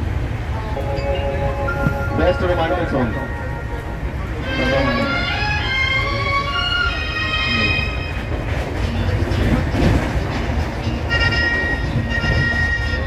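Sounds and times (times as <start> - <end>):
train coach rumbling on rails: 0.0 - 13.0
high held musical tones: 0.6 - 6.0.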